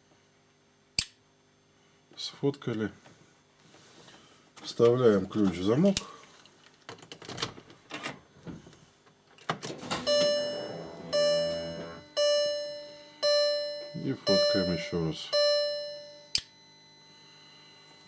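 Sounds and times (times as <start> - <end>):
car warning chime dings: 9.8 - 16.4.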